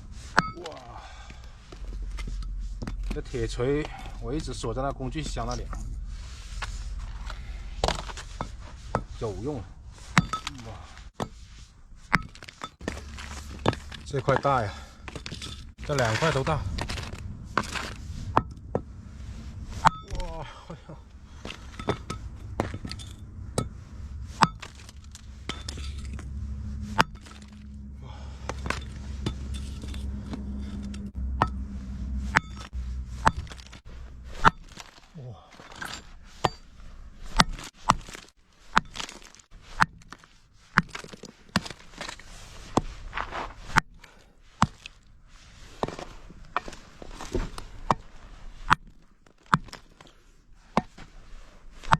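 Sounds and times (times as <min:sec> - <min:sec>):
low steady drone: 0:00.0 - 0:11.8, 0:12.8 - 0:34.9
hammer smashing coal: 0:07.8 - 0:11.4, 0:32.3 - 0:36.7, 0:37.3 - 0:42.2.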